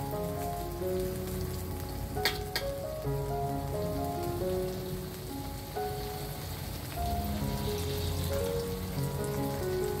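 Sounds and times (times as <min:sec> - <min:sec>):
melodic background music: 0:00.0 - 0:10.0
paste sizzling in oil: 0:03.7 - 0:10.0.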